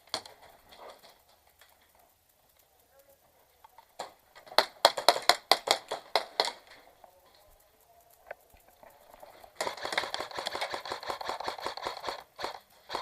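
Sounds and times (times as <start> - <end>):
airsoft gun shots: 4.4 - 6.7, 9.6 - 13.0.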